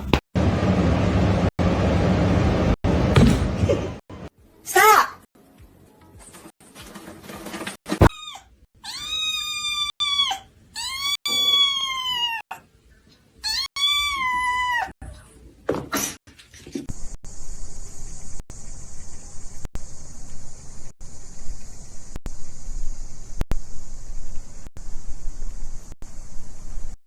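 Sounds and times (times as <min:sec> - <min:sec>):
cat meowing: 0:08.1 - 0:12.5, 0:13.4 - 0:14.9.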